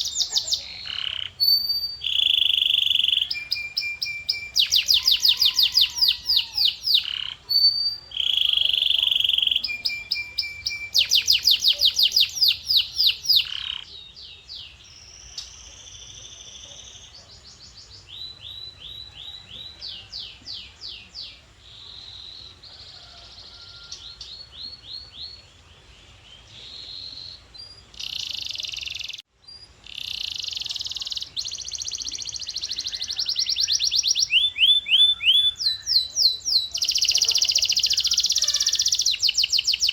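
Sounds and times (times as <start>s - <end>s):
canary singing: 0.0s - 17.2s, 26.6s - 39.9s.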